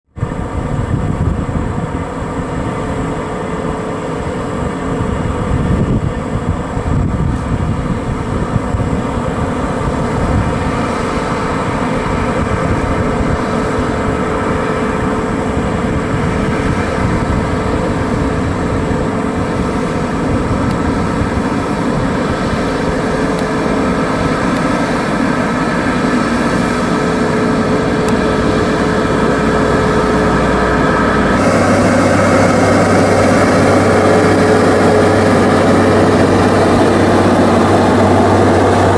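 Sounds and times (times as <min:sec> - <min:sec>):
diesel truck engine droning: 0:00.1 - 0:38.9.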